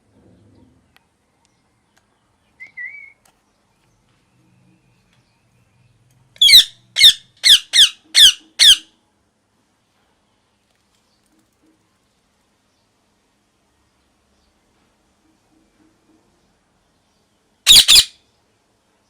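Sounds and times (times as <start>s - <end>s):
parrot squawking: 6.4s - 8.9s, 17.7s - 18.2s.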